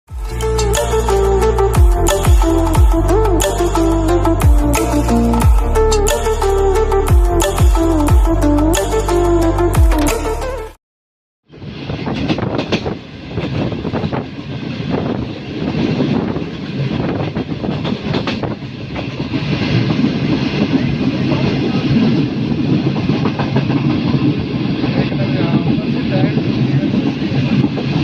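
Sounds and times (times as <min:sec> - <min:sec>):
train wheels rumbling on track: 0:11.6 - 0:28.0
wheels clacking over rail joints: 0:15.8 - 0:22.1.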